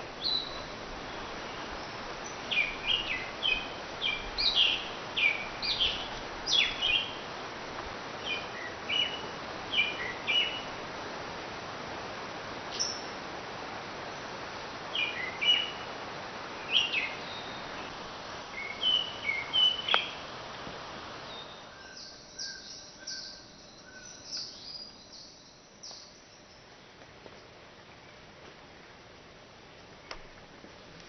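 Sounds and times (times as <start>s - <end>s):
steady hiss: 0.0s - 31.0s
birds chirping: 0.2s - 7.3s, 8.2s - 10.8s, 16.6s - 20.2s, 21.3s - 26.7s.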